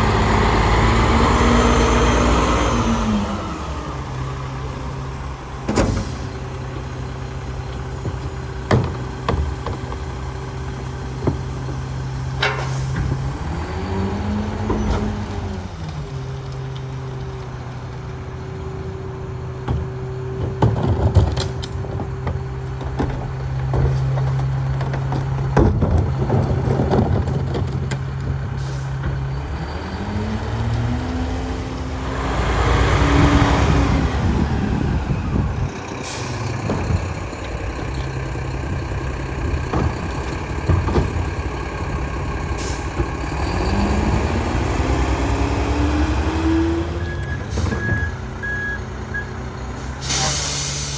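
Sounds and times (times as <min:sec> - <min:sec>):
garbage truck diesel engine: 0:00.0 - 0:50.9
knocks and clatter: 0:05.6 - 0:13.4, 0:19.4 - 0:29.4, 0:35.7 - 0:45.1
air brake hisses: 0:49.8 - 0:50.9.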